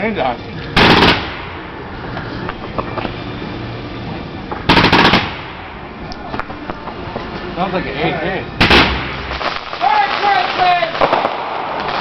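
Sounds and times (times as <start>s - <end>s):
rumbling noise: 0.0s - 12.0s
firework bangs: 0.8s - 3.0s, 4.4s - 7.4s, 8.5s - 12.0s.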